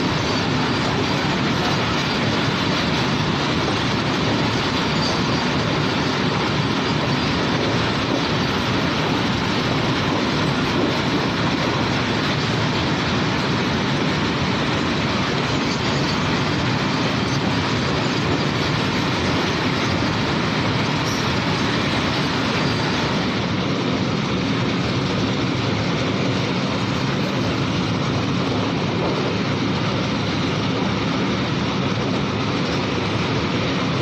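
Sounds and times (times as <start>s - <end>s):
train wheels on rail: 0.0s - 34.0s.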